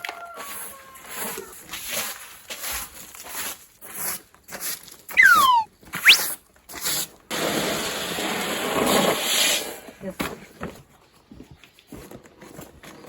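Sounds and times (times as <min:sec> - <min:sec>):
sharp rising squeak: 0:05.1 - 0:06.3
animal squealing: 0:05.2 - 0:06.2.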